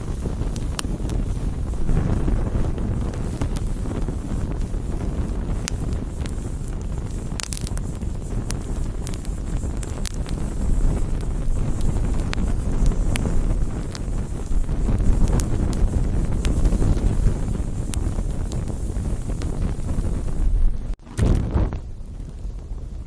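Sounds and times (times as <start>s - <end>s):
sharp pops and snaps: 0.0s - 21.8s
campfire crackling: 0.0s - 23.0s
steady low rumble: 0.0s - 23.0s.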